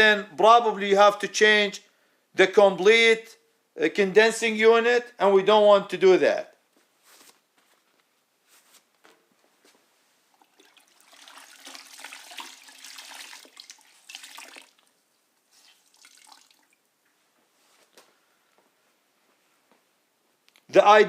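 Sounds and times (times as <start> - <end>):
water trickling and splashing: 10.3 - 16.9.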